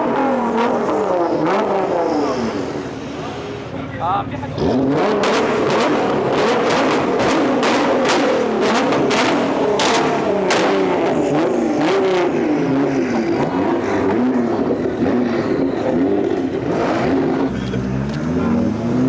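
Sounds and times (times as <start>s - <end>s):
car engines revving: 0.0s - 19.0s
sharp irregular cracks: 5.2s - 11.2s.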